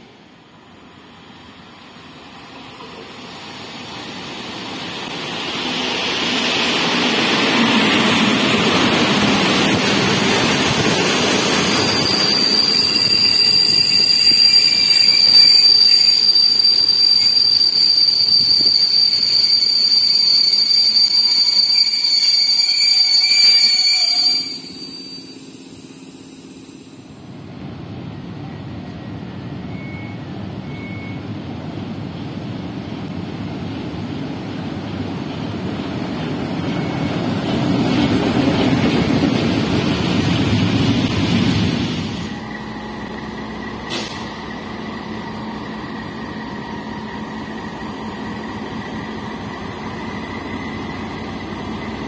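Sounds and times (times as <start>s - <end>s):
diesel locomotive engine rumbling: 0.0s - 52.0s
train rolling in: 0.0s - 52.0s
high brake squeal: 11.6s - 27.2s, 29.4s - 31.3s, 36.7s - 37.2s, 42.2s - 49.1s.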